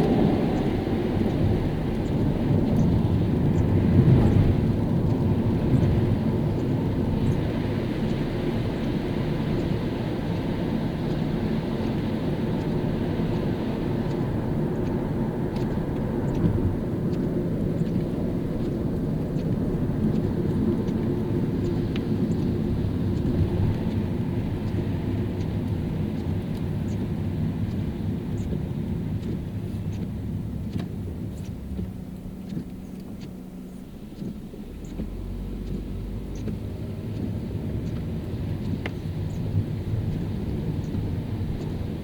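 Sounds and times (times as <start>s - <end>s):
car tyres on wet road: 0.0s - 42.0s
raindrop ticks: 11.0s - 42.0s.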